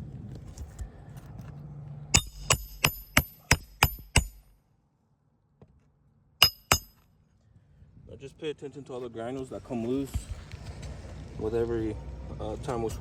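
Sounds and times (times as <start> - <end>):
hammer driving nails: 2.2 - 4.4, 6.4 - 6.9.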